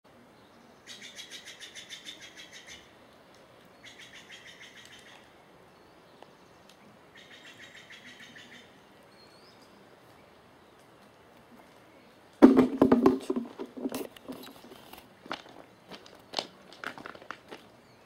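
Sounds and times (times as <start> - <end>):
songbird trilling: 0.8 - 2.9, 3.8 - 6.0, 7.1 - 9.8.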